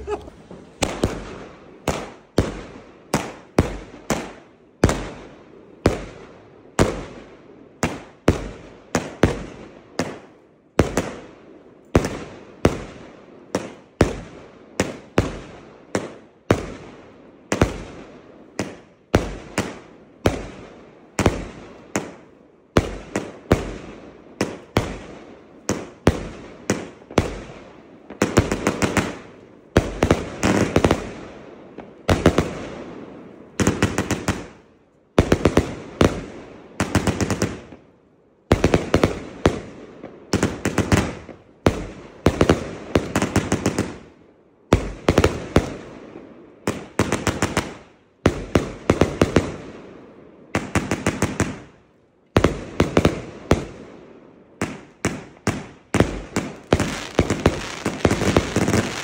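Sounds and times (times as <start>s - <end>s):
fireworks bangs: 0.0s - 2.6s, 54.6s - 59.0s.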